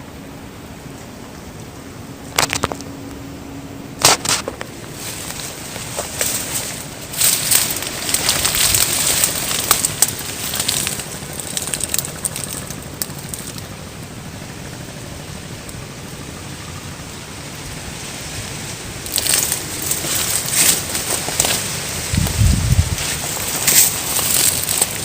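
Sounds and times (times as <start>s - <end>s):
steady hiss: 0.0s - 25.0s
crackling and rustling noise: 0.9s - 3.3s, 3.9s - 25.0s.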